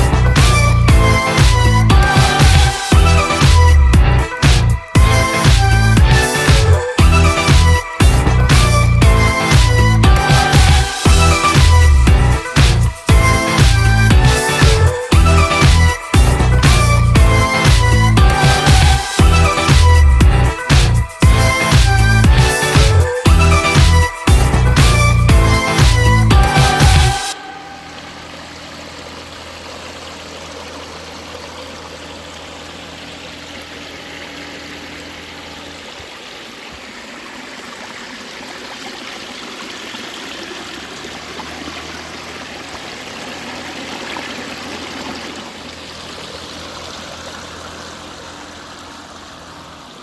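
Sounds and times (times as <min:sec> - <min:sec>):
waterfall splashing and trickling: 0:00.0 - 0:50.0
low steady hum: 0:27.3 - 0:38.6.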